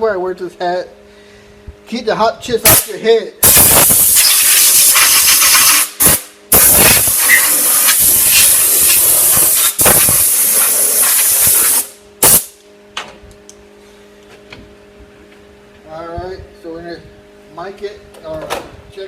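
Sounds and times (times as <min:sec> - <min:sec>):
compressed air blow gun hissing: 0:03.5 - 0:12.5.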